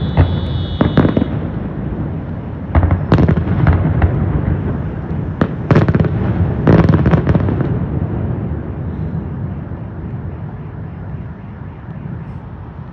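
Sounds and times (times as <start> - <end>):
fireworks crackling bursts: 0.0 - 9.8.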